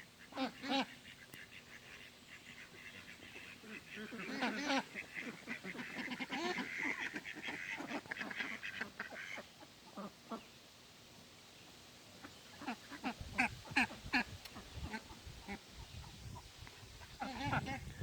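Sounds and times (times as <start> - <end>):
lower poultry calls: 0.0 - 10.5, 12.2 - 18.0
ducklings peeping: 0.1 - 10.6, 12.1 - 18.0.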